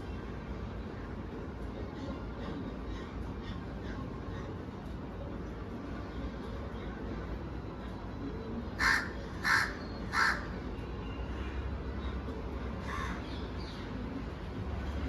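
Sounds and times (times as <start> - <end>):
crow cawing: 8.8 - 10.5.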